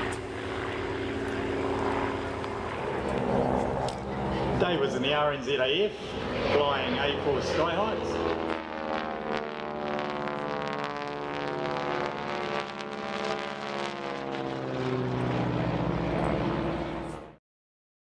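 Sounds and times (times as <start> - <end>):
propeller aircraft flying past: 0.0 - 17.4.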